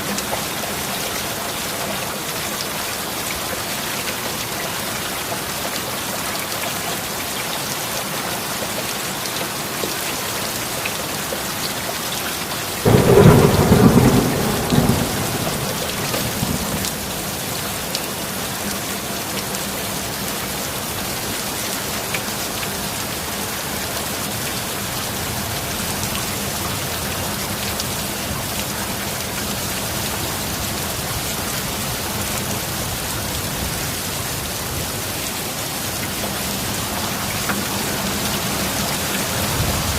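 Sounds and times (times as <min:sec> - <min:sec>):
heavy rain: 0:00.0 - 0:39.9
thunderclap: 0:12.9 - 0:17.3.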